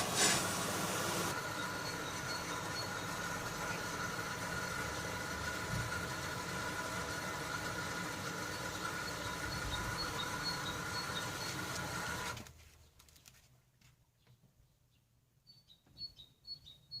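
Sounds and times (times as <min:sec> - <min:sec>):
washing machine motor humming: 0:00.0 - 0:12.5.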